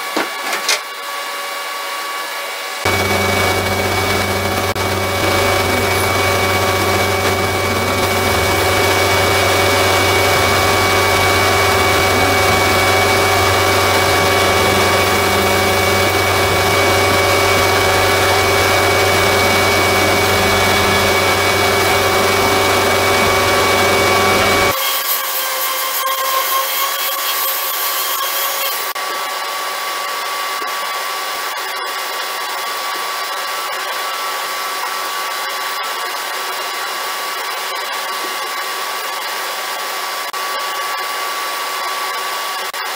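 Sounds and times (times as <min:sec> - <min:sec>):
electric motor humming: 0:02.9 - 0:29.0.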